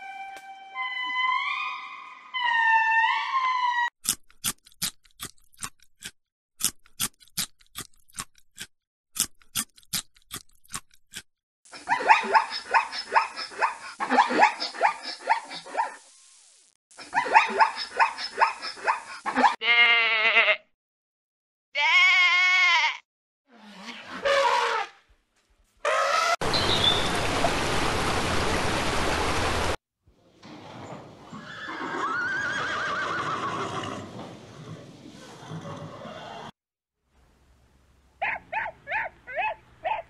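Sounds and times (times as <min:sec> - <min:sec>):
sheep bleating: 0:19.6 - 0:20.7, 0:21.8 - 0:23.0.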